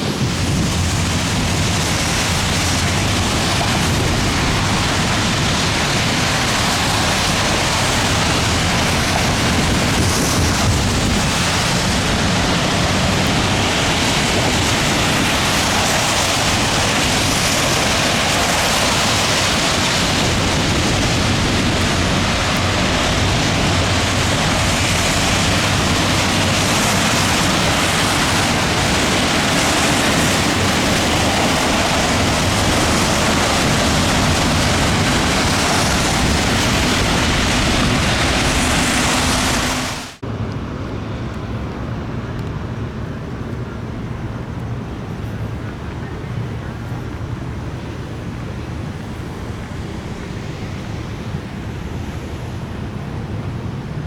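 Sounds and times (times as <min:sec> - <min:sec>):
heavy rain falling: 0:00.0 - 0:40.2
wind: 0:00.0 - 0:54.0.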